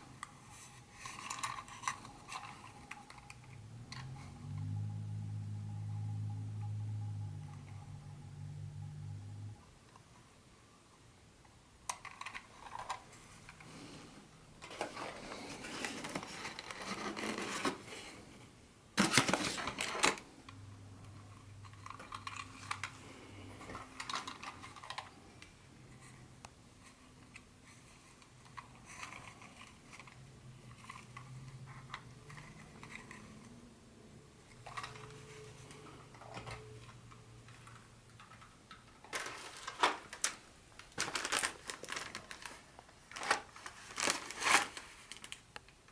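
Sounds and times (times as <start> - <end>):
plastic parts scraping and clicking: 0.0 - 4.7, 11.8 - 18.2, 19.0 - 33.7, 34.4 - 45.8
packaging crinkling: 14.6 - 17.9, 19.0 - 20.3, 37.6 - 45.6
packaging rustling: 14.6 - 18.2, 19.0 - 20.4, 21.6 - 25.5, 34.6 - 45.6.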